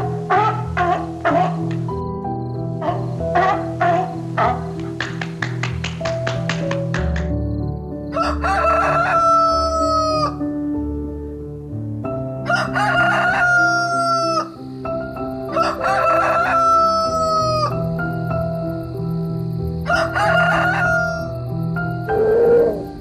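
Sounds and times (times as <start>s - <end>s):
light background music: 0.0s - 23.0s
rooster crowing: 8.1s - 10.4s, 12.4s - 14.6s, 15.5s - 17.8s, 19.8s - 21.4s, 22.0s - 22.9s.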